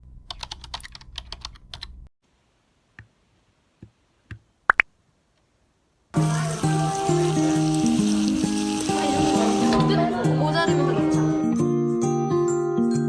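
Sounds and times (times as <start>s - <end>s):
typing on computer keyboard: 0.3s - 1.9s
background music with held notes: 6.2s - 13.0s.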